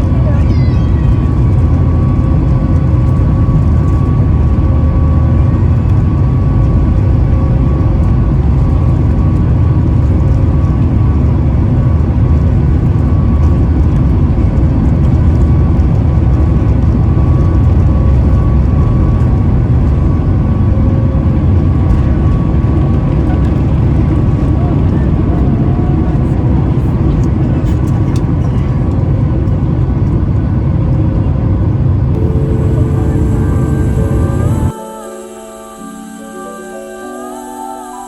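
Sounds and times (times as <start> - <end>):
jet engines heard from cabin: 0.0 - 38.0
faint steady whine: 32.1 - 38.0.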